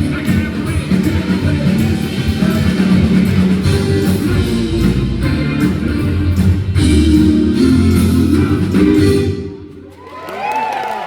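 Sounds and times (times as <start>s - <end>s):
live rock band playing: 0.0s - 9.9s.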